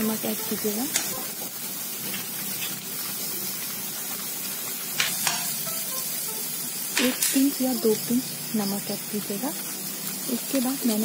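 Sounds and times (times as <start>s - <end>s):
vegetables sizzling in butter: 0.0s - 11.0s
spoon clicking against pan: 5.0s - 5.5s.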